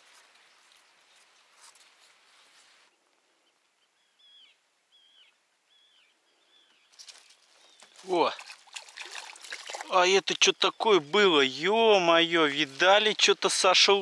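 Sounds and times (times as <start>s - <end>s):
soft hiss: 0.0s - 7.9s
small bird calling: 3.4s - 8.1s.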